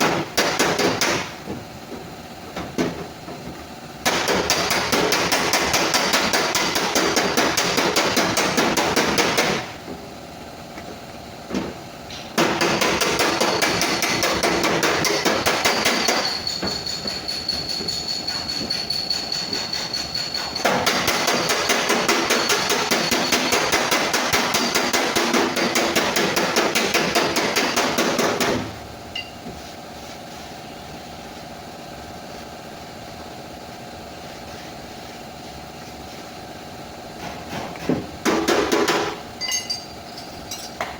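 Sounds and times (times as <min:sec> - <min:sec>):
rapid hammering on sheet metal: 0:00.0 - 0:01.4, 0:04.0 - 0:09.7, 0:12.4 - 0:28.8, 0:38.2 - 0:39.2.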